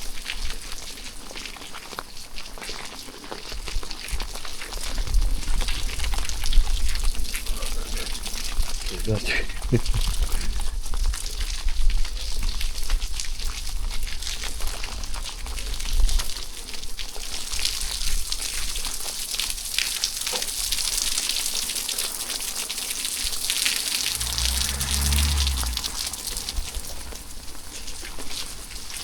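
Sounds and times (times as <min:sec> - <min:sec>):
rain falling: 0:23.4 - 0:29.0
low hum: 0:23.7 - 0:28.0
low rumble: 0:23.7 - 0:28.5.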